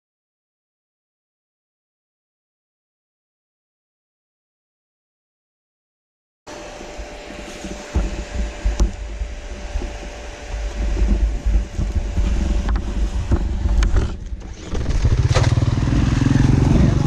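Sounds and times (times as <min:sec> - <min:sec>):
dirt bike engine: 0:06.5 - 0:17.0
low rumbling: 0:08.0 - 0:17.0.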